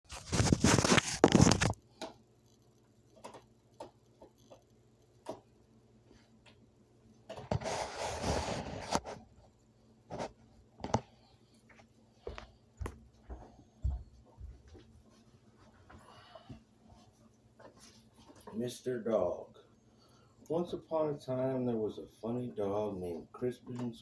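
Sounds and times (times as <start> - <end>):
rustling handling noise: 0.1 - 1.8.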